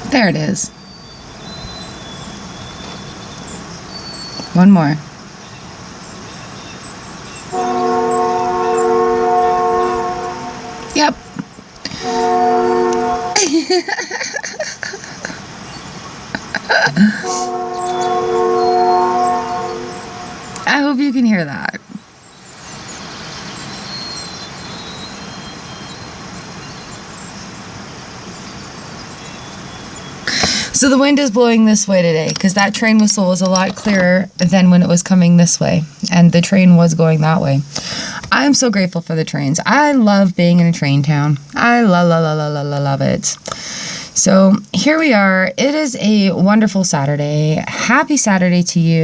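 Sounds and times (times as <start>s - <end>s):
distant train passing: 6.0s - 33.6s
train horn blast: 7.5s - 13.6s, 17.2s - 20.8s.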